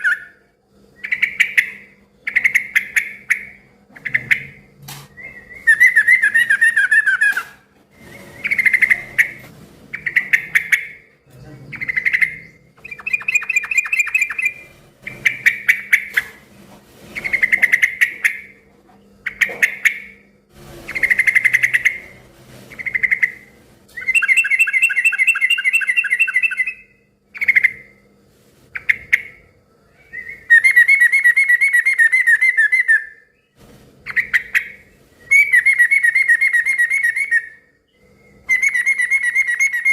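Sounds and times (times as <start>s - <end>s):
bulbul singing chattering phrases: 8.4s - 16.2s.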